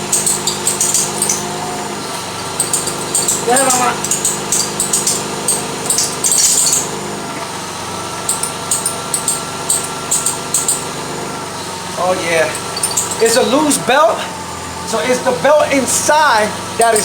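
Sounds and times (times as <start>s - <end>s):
belt squealing: 0.0s - 7.0s, 12.0s - 14.2s
car engine idling: 0.0s - 17.0s.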